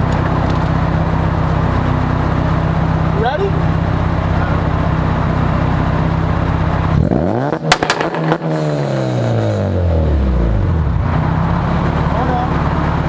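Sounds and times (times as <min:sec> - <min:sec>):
exhaust pops and bangs: 0:00.0 - 0:09.4
car engine idling and revving: 0:00.0 - 0:13.0.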